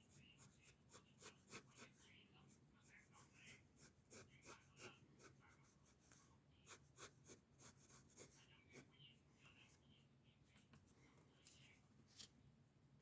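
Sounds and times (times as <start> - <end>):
pencil scratching on paper: 0.0 - 9.0.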